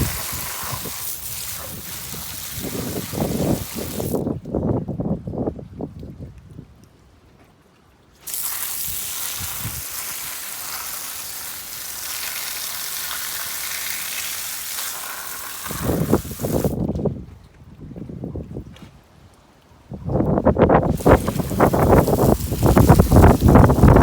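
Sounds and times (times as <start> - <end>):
spray hiss: 0.0 - 4.2, 8.2 - 16.8, 20.9 - 24.0.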